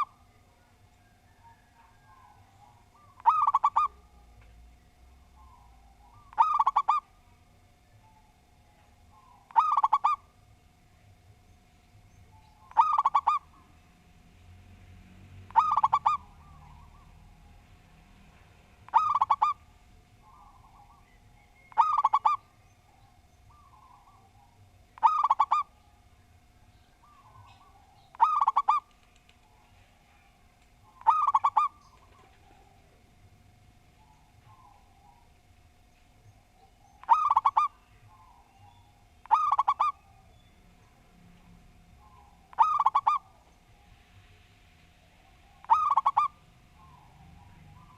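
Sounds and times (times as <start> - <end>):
dove cooing: 0.0 - 4.4, 5.1 - 8.4, 9.0 - 10.4, 12.3 - 13.8, 15.5 - 17.6, 18.8 - 26.0, 27.0 - 33.2, 33.9 - 35.4, 36.3 - 41.0, 41.9 - 44.0, 45.1 - 47.9.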